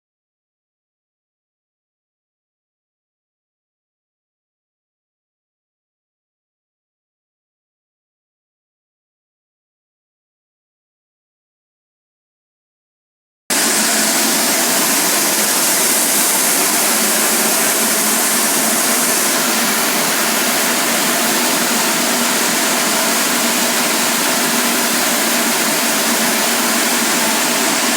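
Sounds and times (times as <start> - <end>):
machine rushing noise: 13.5 - 27.9.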